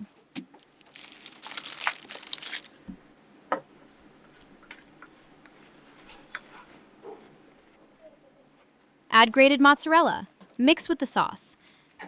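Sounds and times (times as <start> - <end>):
dry herbs rustling and crinkling: 0.6 - 2.8.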